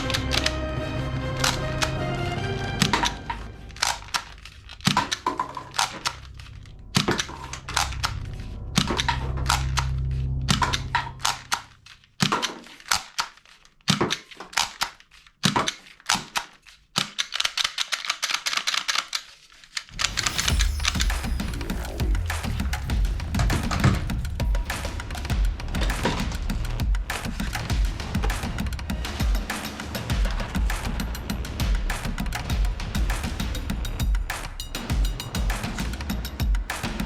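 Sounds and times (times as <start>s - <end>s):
plastic toy guns clicking: 3.8s - 8.2s, 10.6s - 19.9s.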